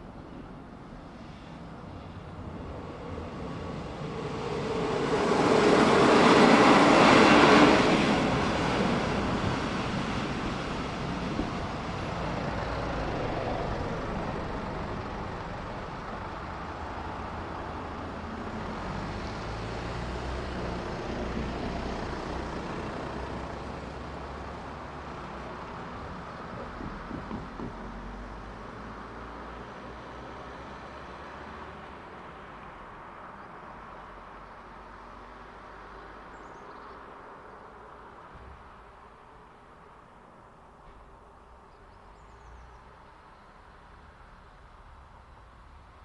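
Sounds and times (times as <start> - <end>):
passenger train rumbling: 0.0 - 30.9.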